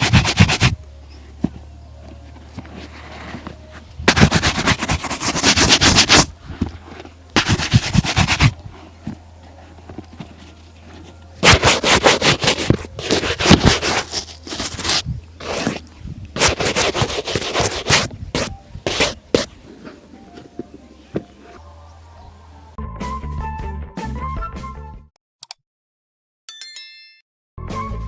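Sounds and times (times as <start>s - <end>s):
shoe being polished: 0.0s - 0.8s, 2.6s - 9.2s, 9.8s - 19.5s
low steady hum: 0.7s - 4.1s.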